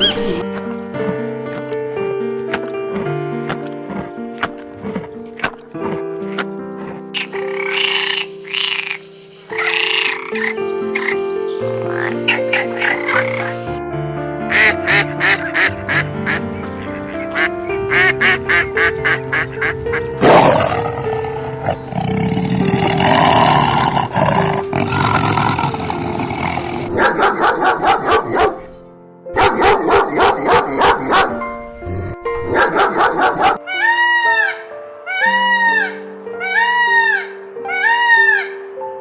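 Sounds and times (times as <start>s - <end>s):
duck quacking: 0.0s - 0.4s
background music: 0.0s - 39.0s.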